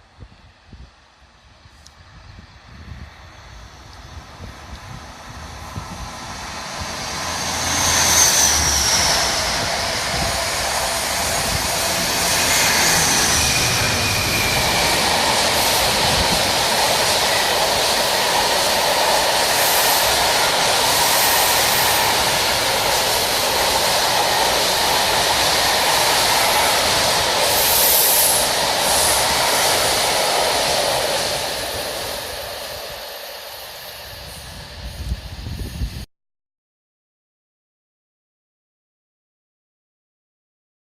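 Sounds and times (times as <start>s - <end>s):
freight train rumbling: 0.0s - 36.1s
train wheel squeals: 4.9s - 36.0s.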